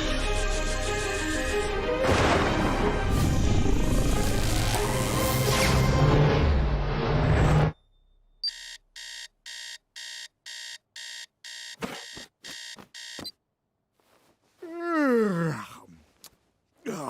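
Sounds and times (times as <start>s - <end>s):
alarm clock beeping: 7.8s - 13.3s.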